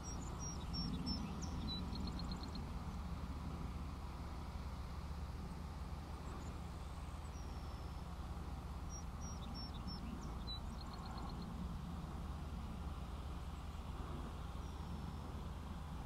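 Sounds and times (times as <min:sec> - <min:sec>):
small birds calling: 0:00.0 - 0:03.1, 0:06.1 - 0:11.6
steady low rumble: 0:00.0 - 0:16.0.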